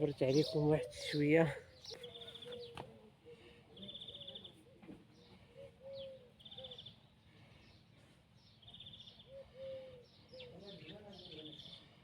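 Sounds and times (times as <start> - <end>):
low cooing: 9.3 - 10.0.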